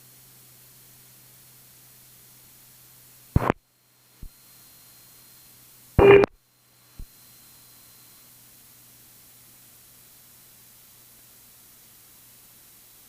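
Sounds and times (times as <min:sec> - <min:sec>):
radio click: 0:03.4 - 0:03.6, 0:06.0 - 0:06.3
radio hiss: 0:03.4 - 0:03.6, 0:06.0 - 0:06.3
radio squelch burst: 0:03.4 - 0:03.6, 0:06.0 - 0:06.3.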